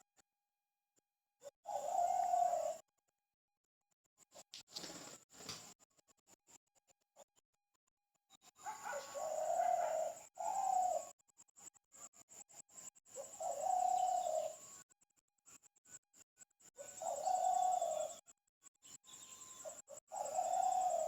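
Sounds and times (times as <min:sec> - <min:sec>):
bird low drawn-out calls: 0:08.7 - 0:11.1, 0:16.8 - 0:18.2, 0:19.6 - 0:21.0.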